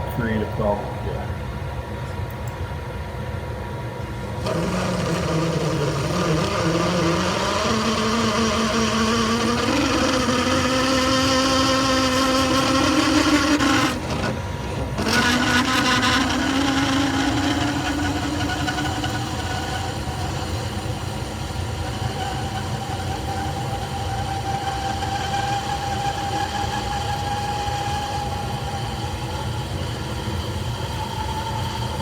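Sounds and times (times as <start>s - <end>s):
metal lathe drilling steel: 4.2s - 32.0s.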